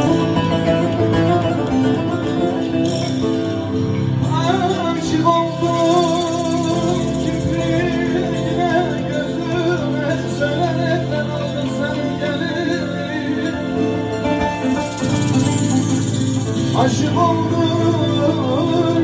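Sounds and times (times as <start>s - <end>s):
plucked string accompaniment: 0.0s - 19.0s
person singing with vibrato: 4.2s - 19.0s.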